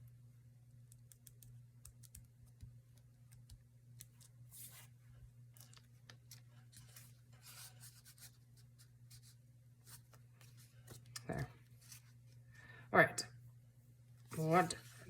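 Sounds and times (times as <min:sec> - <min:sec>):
paper handling clicks: 0:05.6 - 0:07.1.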